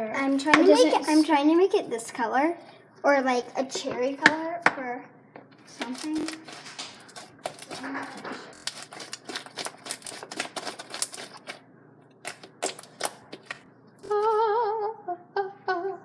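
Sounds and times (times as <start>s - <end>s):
slime crackling and popping: 5.8s - 11.6s, 12.3s - 13.6s
girl humming a tune: 14.0s - 16.0s.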